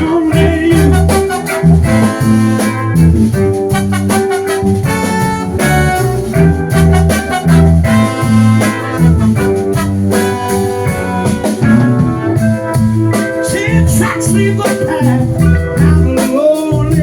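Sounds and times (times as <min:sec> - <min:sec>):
live soul band playing: 0:00.0 - 0:17.0.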